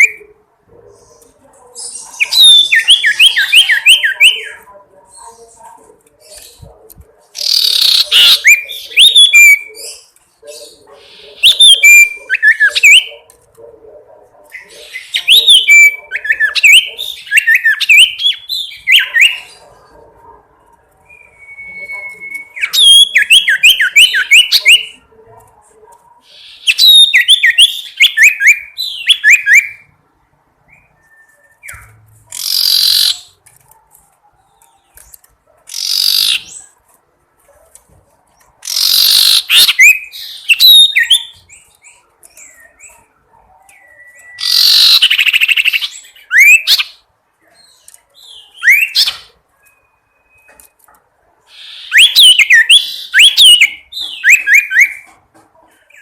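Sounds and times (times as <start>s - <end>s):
bird sharp chirps: 7.4s - 13.3s, 30.7s - 33.4s, 34.5s - 36.8s, 38.6s - 50.8s.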